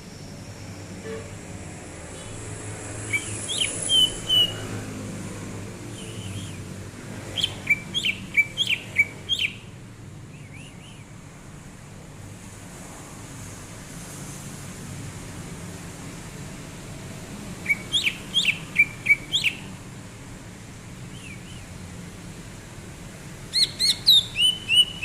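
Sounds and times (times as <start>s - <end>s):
bird singing whistled notes: 3.0s - 4.7s, 5.9s - 6.7s, 7.3s - 9.7s, 10.3s - 11.1s, 17.6s - 19.8s, 21.1s - 21.7s, 23.5s - 25.0s.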